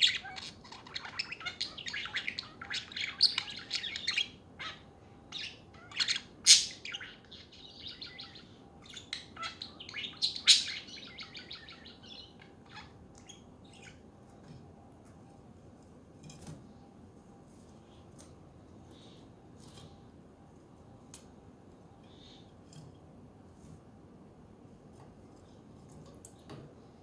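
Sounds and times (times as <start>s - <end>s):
budgerigars chattering: 0.0s - 14.0s
sharp bird calls: 0.0s - 14.0s.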